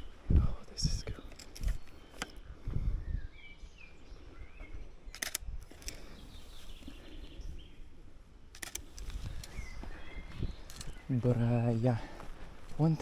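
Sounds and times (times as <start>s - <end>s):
small birds chirping: 0.0s - 13.0s
camera shutter clicks: 5.1s - 6.0s, 8.6s - 9.6s.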